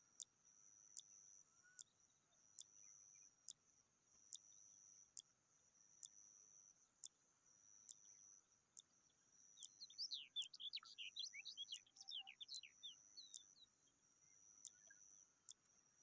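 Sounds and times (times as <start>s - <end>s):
faint ticks: 0.0s - 16.0s
bird twittering: 9.6s - 13.7s.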